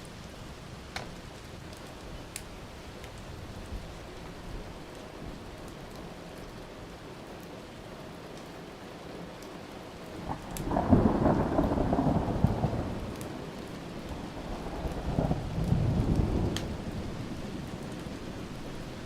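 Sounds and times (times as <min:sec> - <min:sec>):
steady rain: 0:00.0 - 0:19.0
thunder rumbling: 0:10.2 - 0:19.0.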